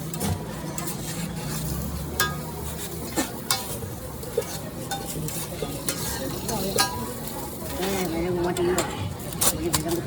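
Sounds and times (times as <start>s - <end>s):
eggs frying on a griddle: 0.5s - 10.0s
metal spatula scraping and clinking: 0.7s - 8.2s.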